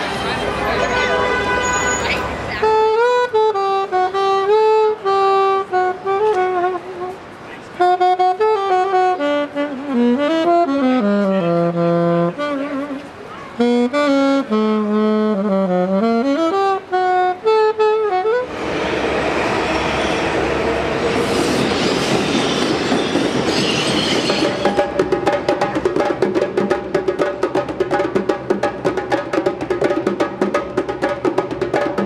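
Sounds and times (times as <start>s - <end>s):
saxophone melody: 0.8s - 18.7s
loud steady rushing noise: 18.2s - 32.0s.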